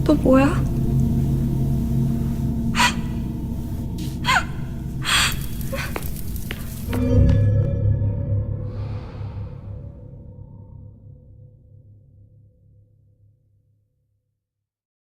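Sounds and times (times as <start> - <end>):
low steady hum: 0.0 - 6.9
person gasping: 2.8 - 3.3, 4.2 - 6.1.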